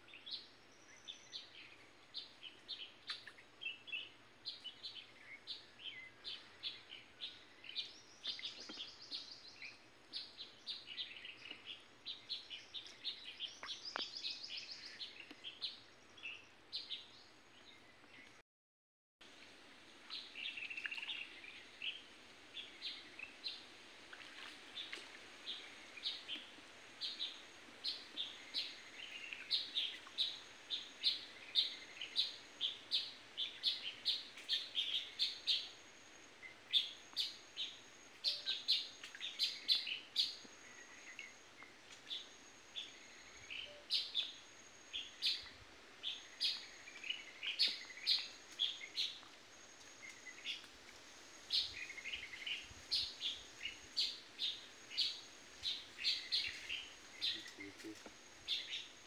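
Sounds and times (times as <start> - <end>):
faint background hiss: 0.0 - 18.3, 19.2 - 59.0
birds chirping: 51.5 - 59.0.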